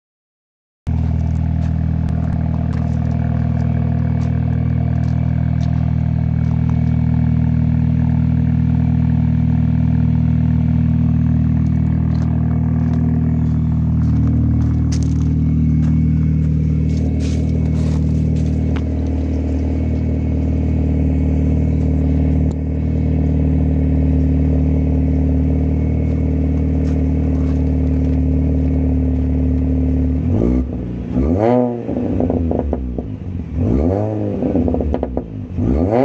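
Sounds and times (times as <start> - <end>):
car engine idling: 0.9 - 31.3.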